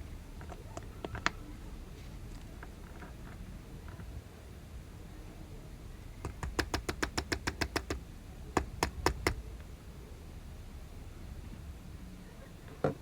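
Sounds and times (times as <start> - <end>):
sharp clicks: 6.3 - 8.0, 8.6 - 9.4.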